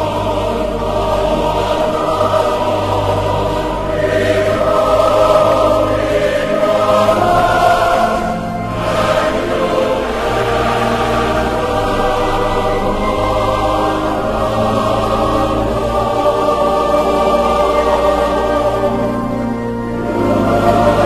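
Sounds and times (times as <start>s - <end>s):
choir singing sustained notes: 0.0s - 21.0s
low musical accompaniment: 0.0s - 21.0s.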